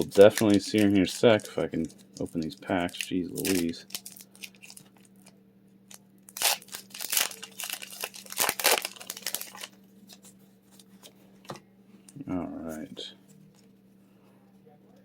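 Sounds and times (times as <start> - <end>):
foil wrapper tearing and crinkling: 0.0 - 5.3, 5.9 - 10.9
small crackles: 0.1 - 11.1.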